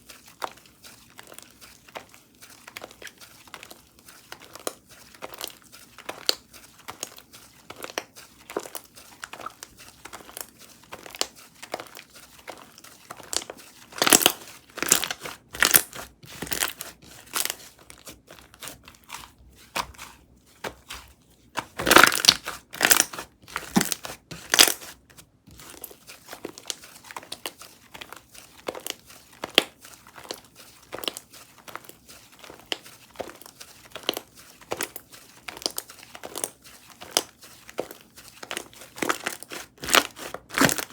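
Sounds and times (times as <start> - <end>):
slime squished by hand: 4.4 - 25.0.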